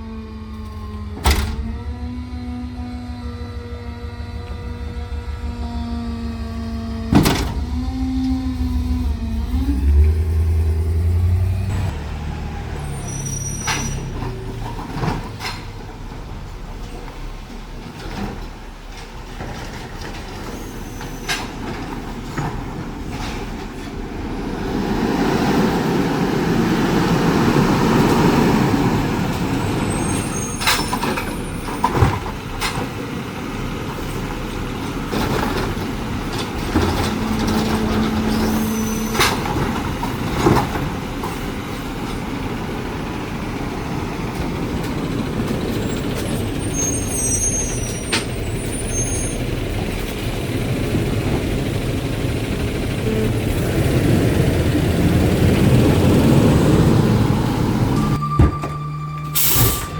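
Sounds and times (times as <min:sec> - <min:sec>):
garbage truck engine revving: 0:00.0 - 0:59.9
air brake hisses: 0:59.3 - 0:59.9.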